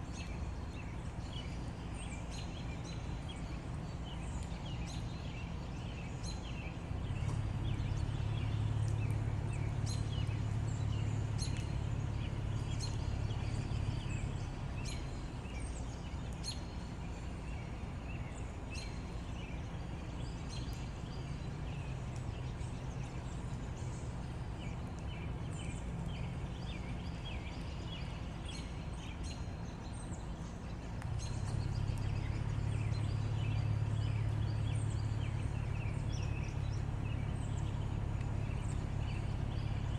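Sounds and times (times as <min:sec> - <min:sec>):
birds chirping: 0:00.0 - 0:39.9
steady low rumble: 0:19.3 - 0:39.9.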